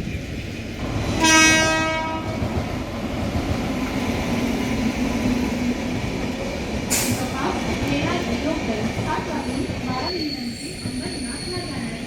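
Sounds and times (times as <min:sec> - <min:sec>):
train rumbling: 0:00.0 - 0:12.0
train horn blast: 0:01.2 - 0:02.5.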